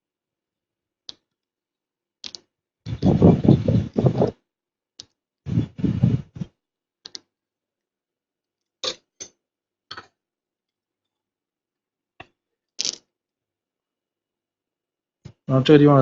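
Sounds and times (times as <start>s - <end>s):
small tools clicking: 2.2s - 2.5s, 12.8s - 13.1s.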